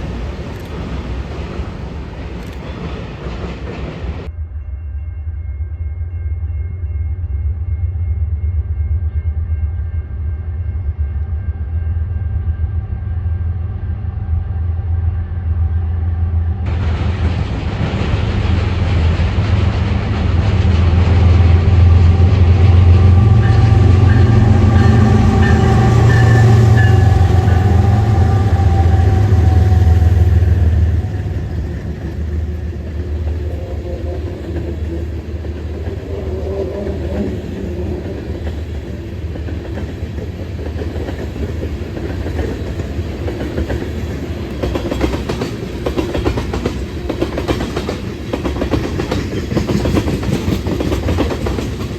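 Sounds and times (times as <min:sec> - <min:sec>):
train wheels clicking over rail joints: 0:00.0 - 0:04.3, 0:16.7 - 0:51.9
locomotives rumbling: 0:16.7 - 0:51.9.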